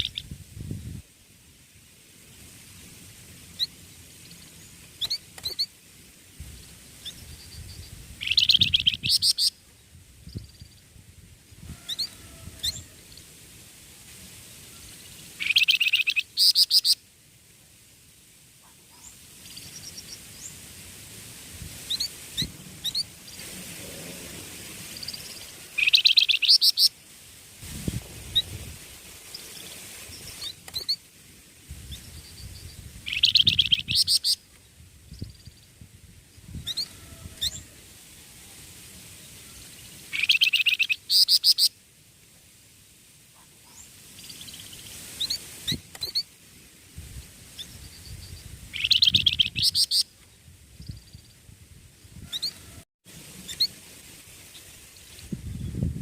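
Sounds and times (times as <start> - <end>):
songbird rapid high chirping: 0.0 - 0.3, 6.6 - 9.6, 15.0 - 17.0, 24.9 - 26.9, 31.9 - 34.4, 40.1 - 41.7, 47.6 - 50.1.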